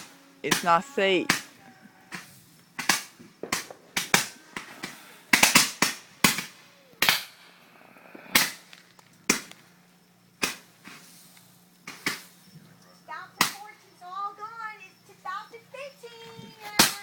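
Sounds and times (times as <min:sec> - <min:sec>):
firecrackers banging: 0:00.0 - 0:12.6, 0:13.2 - 0:17.0.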